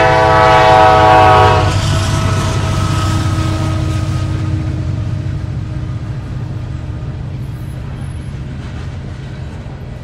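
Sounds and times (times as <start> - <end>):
diesel train rumbling past: 0.0 - 10.0.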